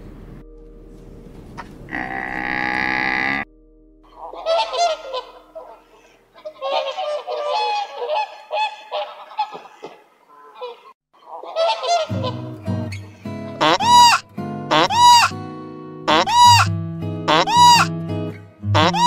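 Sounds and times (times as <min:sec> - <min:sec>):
birds honking: 0:04.1 - 0:15.4, 0:16.1 - 0:16.7, 0:17.3 - 0:17.9, 0:18.8 - 0:19.0.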